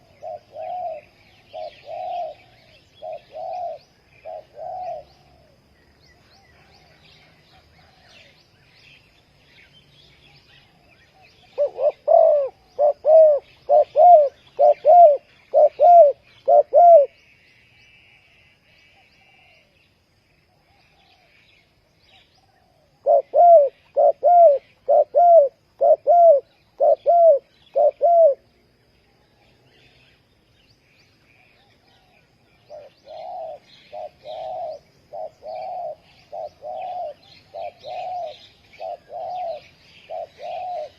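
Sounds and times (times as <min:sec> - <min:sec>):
dove cooing: 0:00.0 - 0:05.6, 0:10.6 - 0:17.2, 0:22.4 - 0:28.5, 0:31.9 - 0:40.9
faint small birds chirping: 0:00.0 - 0:40.9.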